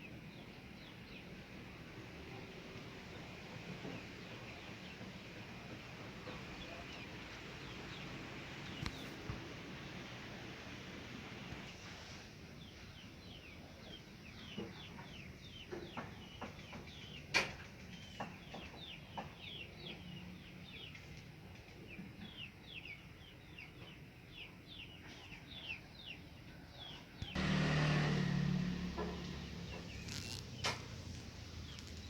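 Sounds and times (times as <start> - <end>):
small birds chirping: 0.0 - 10.1, 12.5 - 27.4, 29.1 - 32.0.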